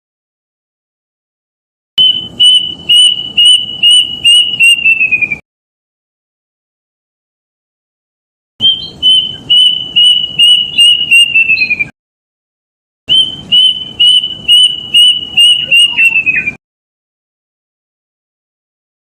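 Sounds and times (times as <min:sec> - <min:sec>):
cuckoo singing whistled notes: 0:02.0 - 0:05.4, 0:08.6 - 0:11.9, 0:13.1 - 0:16.6.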